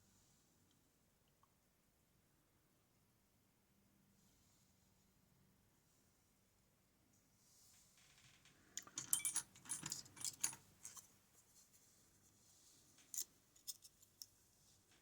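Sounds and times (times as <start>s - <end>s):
metal lock parts clicking: 8.8s - 11.0s.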